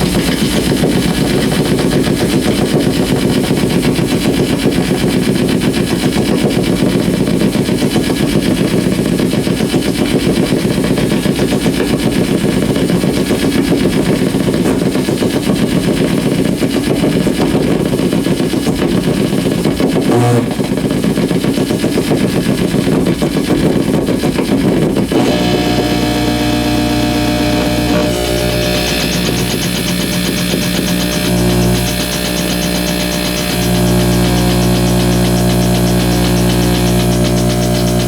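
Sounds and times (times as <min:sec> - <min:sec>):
electrical hum with piercing tones: 0:18.9 - 0:20.9, 0:25.0 - 0:38.0
rapid electrical crackling pulse: 0:25.0 - 0:38.0.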